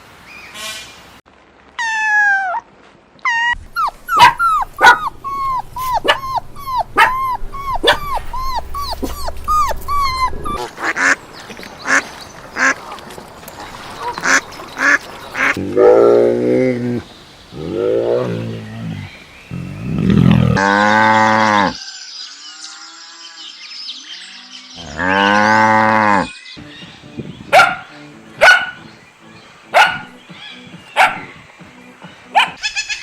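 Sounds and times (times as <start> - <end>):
dog whining: 3.2 - 10.7
ducks quacking: 10.0 - 11.2, 11.8 - 13.0, 14.0 - 15.7
cow mooing: 17.6 - 21.8, 24.8 - 26.3.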